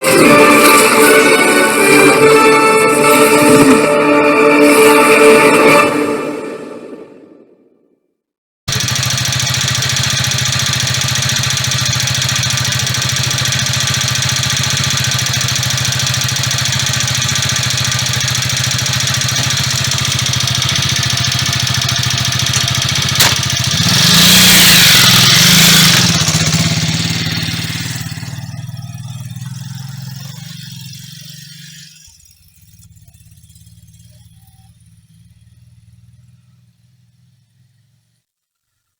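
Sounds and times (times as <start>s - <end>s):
motorcycle engine running: 8.7s - 38.8s.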